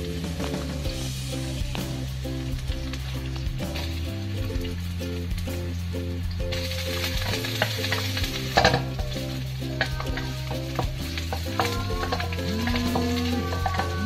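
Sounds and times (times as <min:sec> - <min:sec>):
sausage sizzling in oil: 0:00.0 - 0:14.0
spatula scraping a wok: 0:06.5 - 0:14.0.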